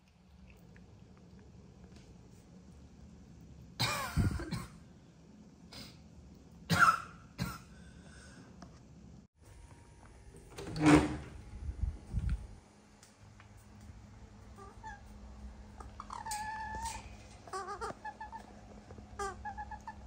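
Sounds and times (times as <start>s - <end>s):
door opening with clatter: 10.4s - 11.4s.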